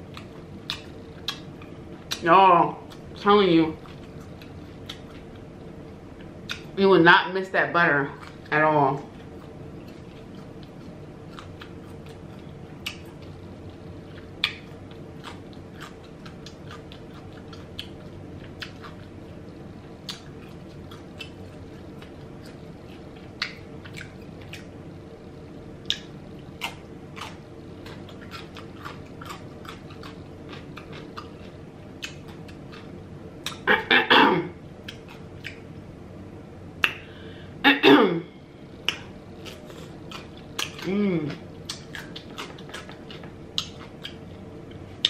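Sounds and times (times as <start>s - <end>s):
steady low hum: 0.0s - 45.0s
chewing with wet mouth clicks: 0.1s - 2.2s, 2.8s - 3.1s, 3.8s - 5.5s, 6.2s - 6.8s, 8.2s - 8.5s, 9.1s - 24.7s, 25.8s - 33.6s, 34.8s - 35.8s, 38.8s - 45.0s.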